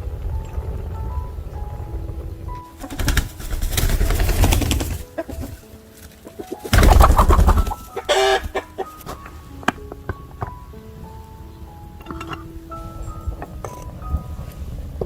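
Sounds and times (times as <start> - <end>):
wings flapping: 2.5 - 9.2
chickens clucking: 4.5 - 10.5
chicken squawk: 7.0 - 9.0.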